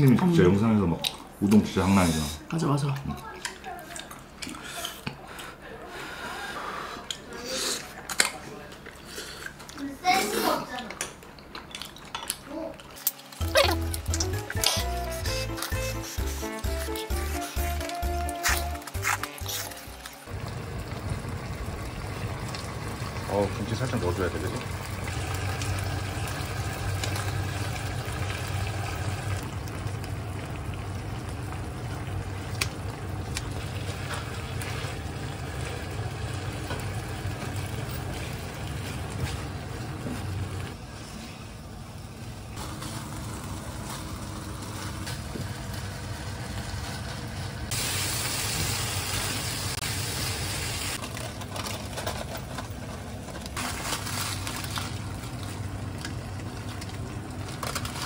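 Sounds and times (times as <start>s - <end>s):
food sizzling in a frying pan: 20.3s - 40.7s, 42.6s - 51.0s.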